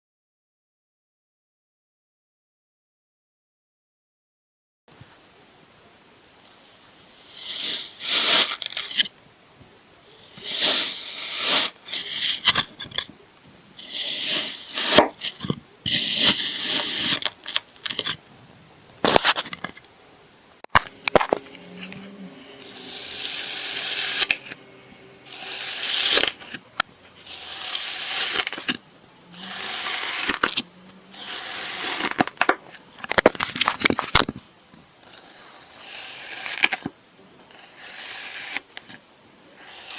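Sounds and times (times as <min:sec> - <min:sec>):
sand being cut and crumbled: 0:07.1 - 0:09.1, 0:10.2 - 0:13.1, 0:13.8 - 0:18.2, 0:20.8 - 0:28.8, 0:29.4 - 0:34.2, 0:35.0 - 0:36.9, 0:37.5 - 0:39.0.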